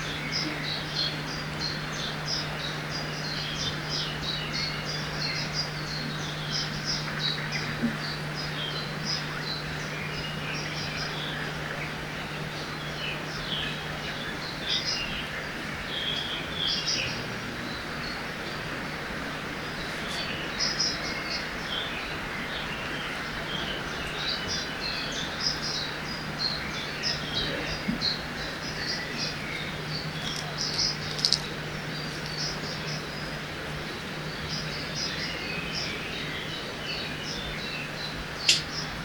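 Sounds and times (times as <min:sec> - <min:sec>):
flowing water: 0:00.0 - 0:39.0
small birds chirping: 0:00.0 - 0:39.0
sharp tick: 0:38.5 - 0:38.7.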